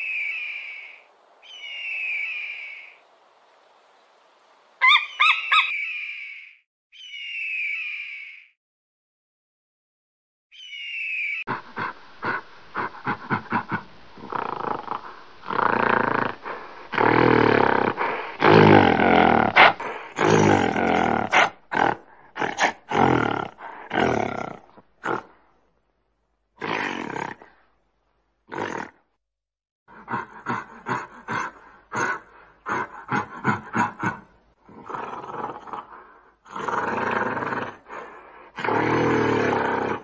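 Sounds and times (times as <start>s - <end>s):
large animal roaring and grunting: 34.7s - 40.0s.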